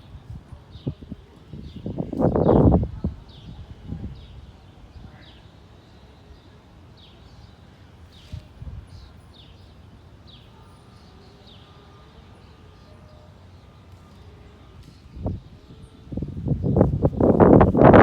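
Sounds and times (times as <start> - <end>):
wind rumble on microphone: 0.0 - 5.3, 8.2 - 9.2, 14.8 - 18.0.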